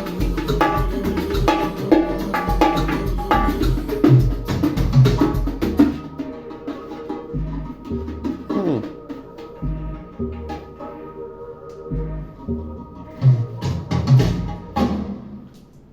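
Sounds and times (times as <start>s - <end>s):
drums: 0.0s - 10.7s, 13.1s - 15.9s
conga drums: 0.0s - 11.0s, 13.1s - 15.4s
bass line: 7.4s - 9.0s, 9.6s - 10.4s, 11.9s - 13.0s.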